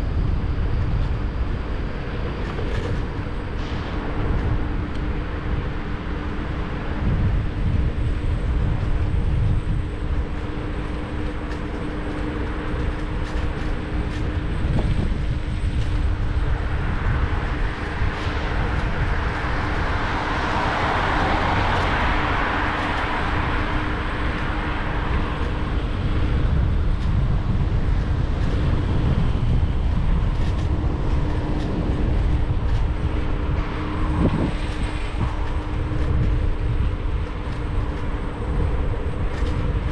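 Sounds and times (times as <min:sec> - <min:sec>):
steady scooter hum: 0:00.0 - 0:39.9
wind and road rumble: 0:00.0 - 0:39.9
passing vehicle: 0:17.3 - 0:26.4.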